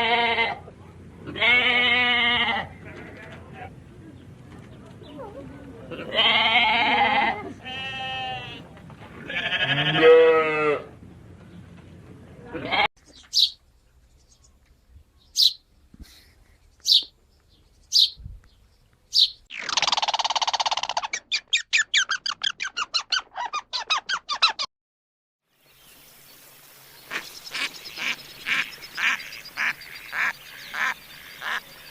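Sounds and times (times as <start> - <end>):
animal bleats: 0.0 - 0.6, 1.2 - 3.7, 5.9 - 10.9, 12.5 - 12.9.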